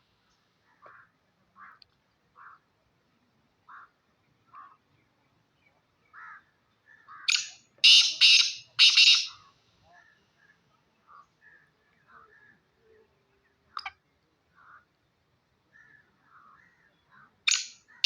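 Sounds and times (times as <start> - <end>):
loud harsh bird call: 7.2 - 9.5.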